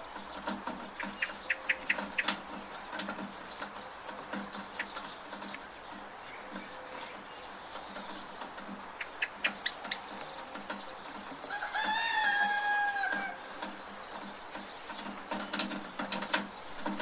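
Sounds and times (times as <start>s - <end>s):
rain hissing: 0.0s - 17.0s
rooster crowing: 11.4s - 13.6s.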